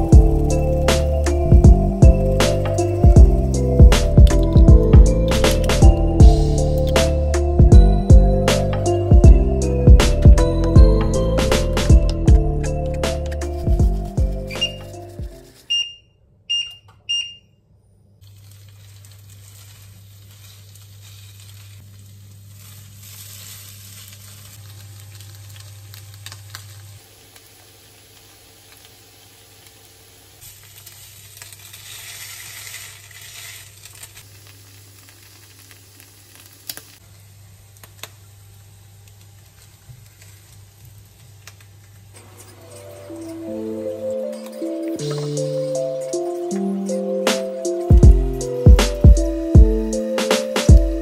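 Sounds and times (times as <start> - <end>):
low hum from hob: 0.0 - 8.5, 18.2 - 44.3
short high beeps: 15.7 - 17.5
potato cakes sizzling in oil: 18.2 - 37.0.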